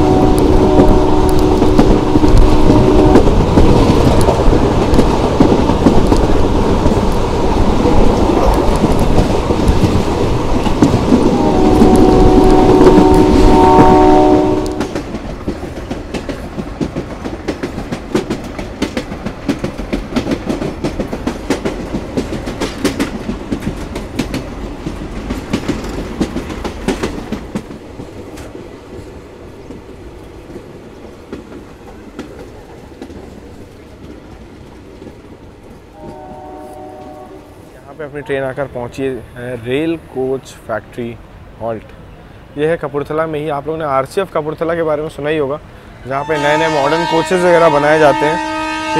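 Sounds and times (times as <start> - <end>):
locomotive horn: 0.0 - 3.3, 11.3 - 15.0, 36.0 - 37.6, 46.2 - 48.9
moving train rumble: 0.0 - 48.9
wheel clatter over rail joints: 14.8 - 28.6.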